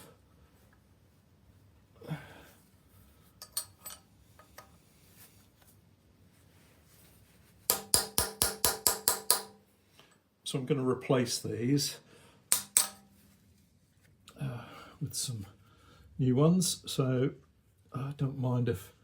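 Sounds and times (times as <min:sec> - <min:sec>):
steel tool tapping metal: 0:07.7 - 0:09.6, 0:12.5 - 0:13.1.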